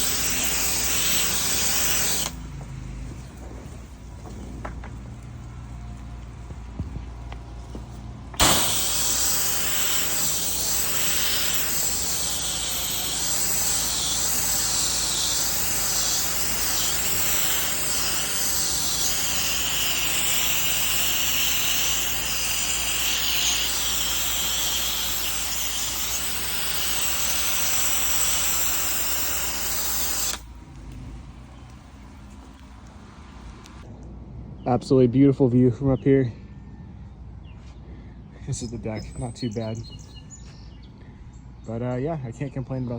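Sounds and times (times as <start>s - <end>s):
pressure washer spraying water: 0.0s - 2.5s, 8.4s - 30.5s.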